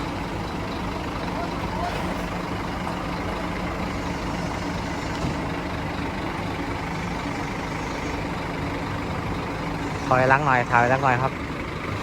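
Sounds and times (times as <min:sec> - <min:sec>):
bus diesel engine at low revs: 0:00.0 - 0:12.0.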